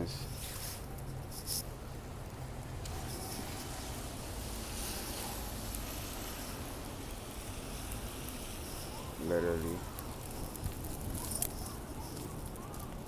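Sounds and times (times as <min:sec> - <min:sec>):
traffic: 0:00.0 - 0:13.0
wet snow and rain falling: 0:00.3 - 0:13.0
wind rumble on microphone: 0:02.7 - 0:13.0.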